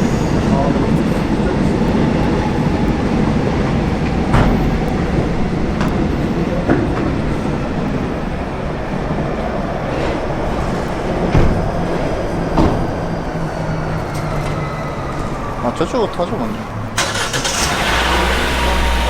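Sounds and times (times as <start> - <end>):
subway train rumble: 0.0 - 19.0.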